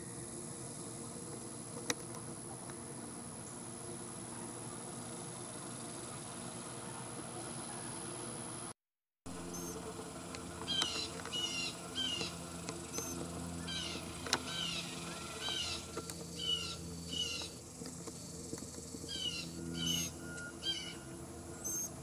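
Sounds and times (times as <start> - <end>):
steady low hum: 0.0 - 22.0
songbird chirping: 18.6 - 21.9.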